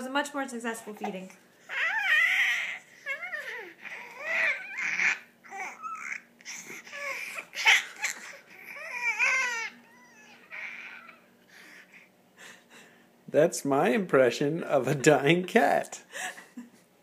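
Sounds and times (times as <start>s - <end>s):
baby squealing and babbling: 1.0s - 11.3s.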